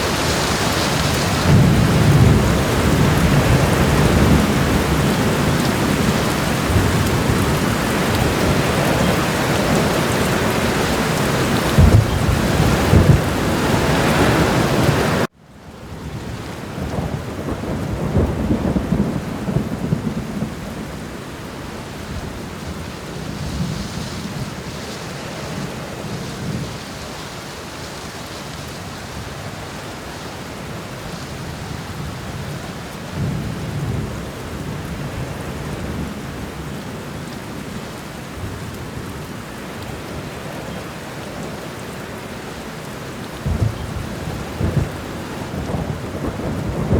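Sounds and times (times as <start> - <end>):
steady rain hissing: 0.0 - 46.9
low rumbles of thunder: 0.4 - 15.3, 16.0 - 24.7, 43.3 - 46.9.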